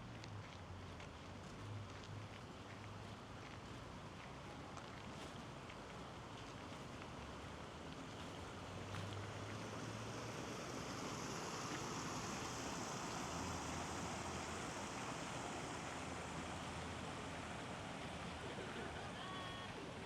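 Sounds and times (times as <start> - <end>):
river water rushing: 8.7 - 20.0.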